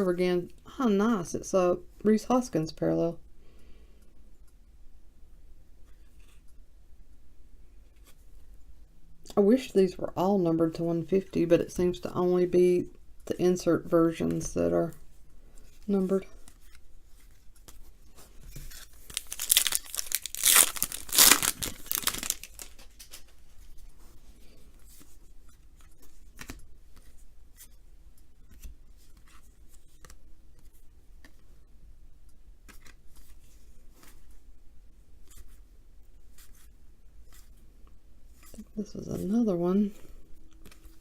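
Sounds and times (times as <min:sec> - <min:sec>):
cards being handled: 0:15.6 - 0:23.8, 0:24.5 - 0:27.8, 0:32.6 - 0:34.4, 0:40.5 - 0:41.0
foil wrapper crinkling and ripping: 0:18.7 - 0:23.3.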